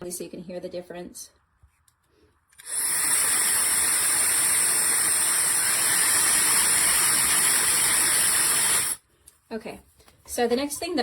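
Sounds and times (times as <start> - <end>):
hair dryer blowing with whine: 2.6 - 9.0.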